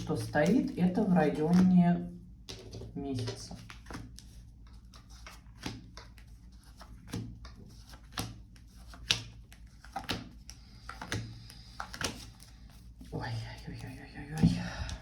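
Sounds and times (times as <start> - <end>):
low steady hum: 0.0 - 15.0
cards tapping and slapping: 2.4 - 12.5.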